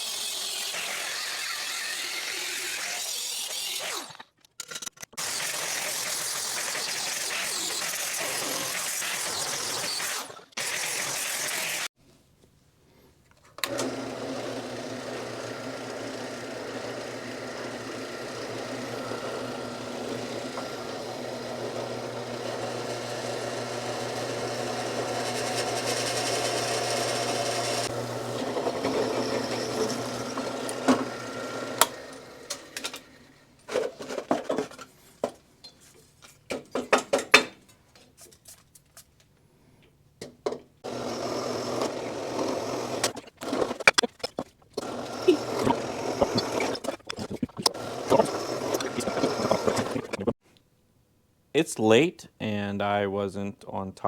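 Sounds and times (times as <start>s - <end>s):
power tool motor on metal: 0.0s - 4.2s, 5.2s - 11.9s, 13.6s - 33.4s, 40.8s - 43.9s, 44.8s - 50.2s.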